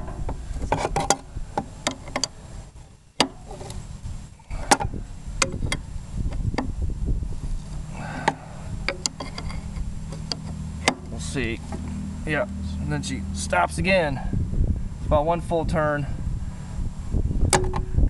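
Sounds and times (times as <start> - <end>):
engine clicking turned by hand: 0.0 - 2.4, 4.4 - 6.8, 7.6 - 12.0
low rumble: 0.0 - 18.0.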